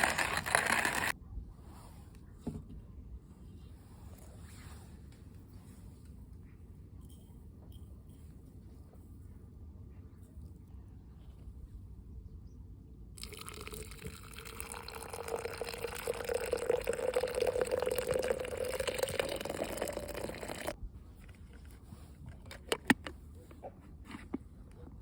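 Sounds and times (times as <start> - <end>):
liquid pouring into container: 0.0 - 1.1, 13.2 - 20.8.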